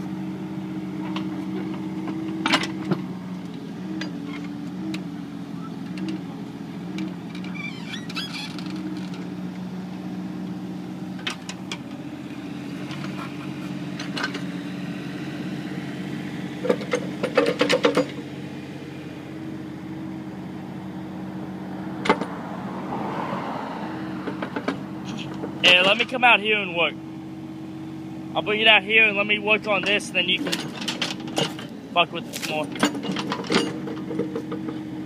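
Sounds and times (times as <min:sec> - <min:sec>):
excavator diesel engine running: 0:00.0 - 0:35.0
metallic clanks and knocks: 0:16.6 - 0:18.2, 0:29.8 - 0:31.8, 0:32.4 - 0:34.8.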